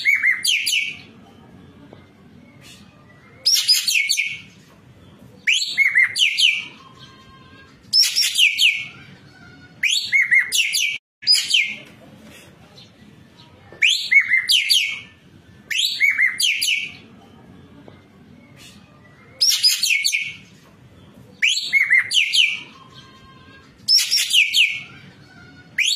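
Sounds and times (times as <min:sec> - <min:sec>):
songbird singing whistled notes: 0:02.4 - 0:04.5, 0:05.4 - 0:07.3, 0:07.9 - 0:09.0, 0:13.7 - 0:17.0, 0:18.4 - 0:20.4, 0:21.3 - 0:23.2, 0:23.9 - 0:24.9.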